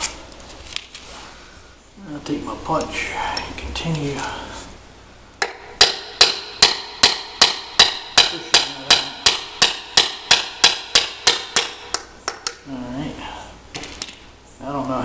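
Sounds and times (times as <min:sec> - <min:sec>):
hammer striking metal punch: 0:05.4 - 0:12.6.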